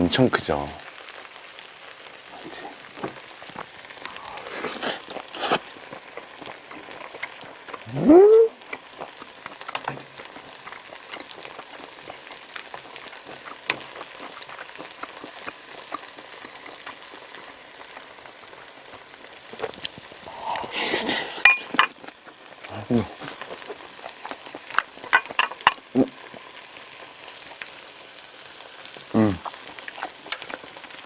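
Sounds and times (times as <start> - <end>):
person chewing food: 2.9 - 27.6, 29.1 - 31.0
person humming mm: 4.0 - 5.6, 7.8 - 8.6, 20.2 - 21.5, 29.1 - 29.5
wet mouth clicks: 4.0 - 5.7, 19.6 - 21.9.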